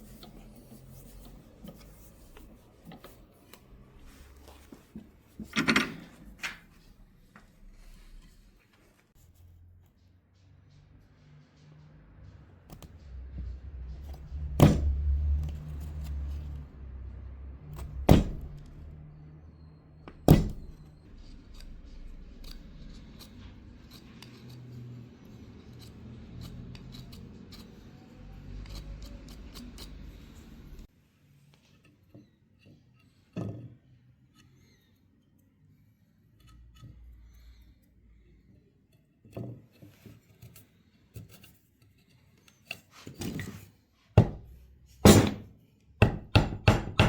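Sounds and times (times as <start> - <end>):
loud sharp knocks: 14.5 - 15.0, 17.9 - 18.6, 20.2 - 20.8, 44.2 - 47.0.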